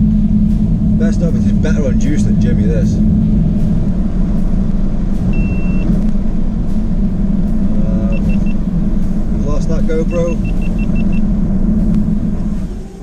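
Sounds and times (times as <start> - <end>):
car engine drone: 0.0 - 13.0
road noise: 0.0 - 13.0
electronic beeps: 5.3 - 5.9, 8.0 - 8.6, 10.1 - 11.2.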